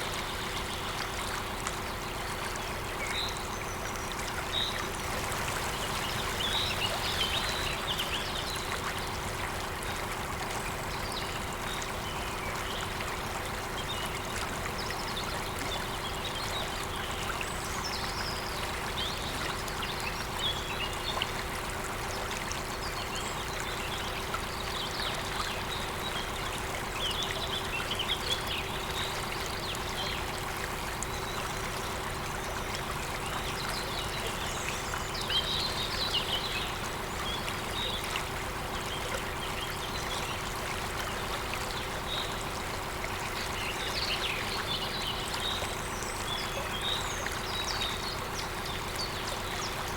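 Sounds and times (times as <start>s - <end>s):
waterfall running: 4.8s - 10.0s.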